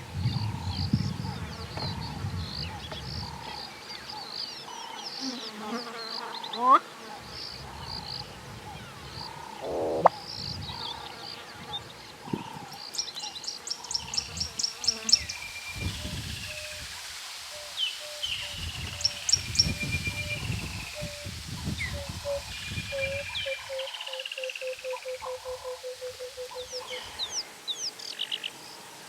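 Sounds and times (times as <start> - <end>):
high bird chirps: 9.6 - 10.1
low rumbling noise: 9.6 - 10.1
repeated mid-pitched bird note: 9.6 - 10.1.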